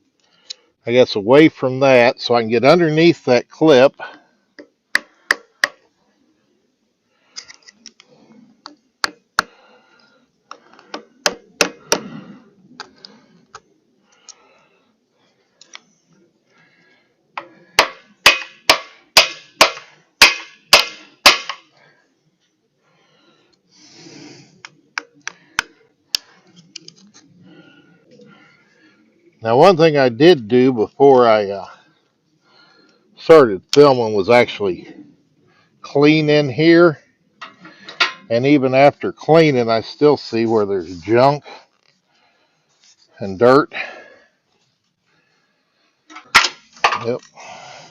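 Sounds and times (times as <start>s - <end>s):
sharp metal strikes: 17.8s - 21.6s.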